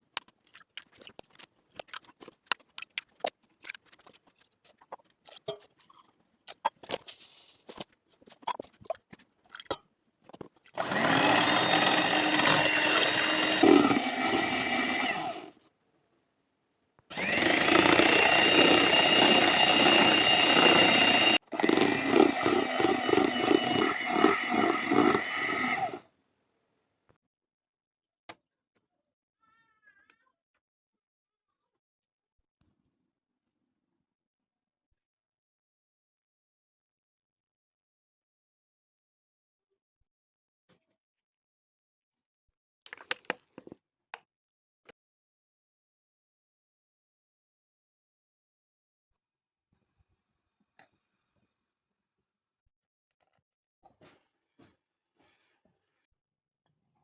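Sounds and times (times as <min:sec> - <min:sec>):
kitchen appliance motor running: 0:10.8 - 0:15.6, 0:17.1 - 0:26.0.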